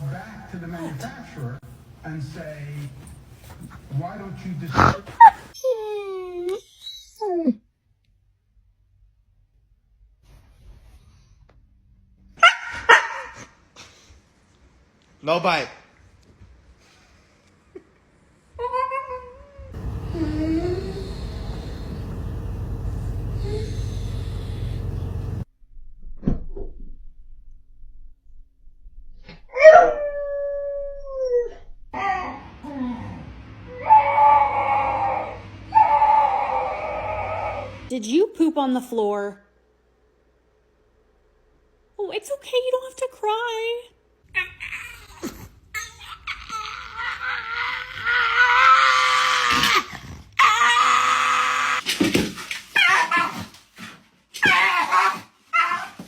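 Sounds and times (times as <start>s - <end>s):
dog yelping: 4.7s - 5.8s, 12.4s - 13.5s, 33.7s - 37.8s, 52.8s - 53.5s, 54.4s - 56.0s
dog howling: 4.8s - 5.5s, 19.8s - 25.4s, 33.7s - 37.9s, 50.4s - 51.8s.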